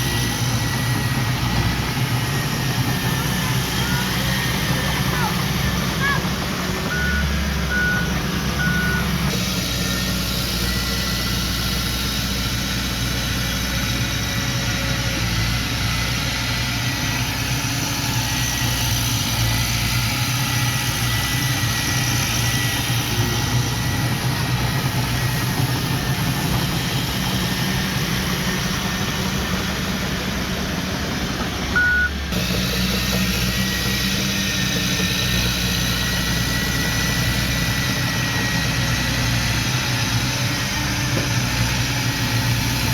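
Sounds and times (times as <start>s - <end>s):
heavy diesel engine running: 0.0s - 42.9s
reversing alarm beep: 6.8s - 9.3s, 31.8s - 32.2s.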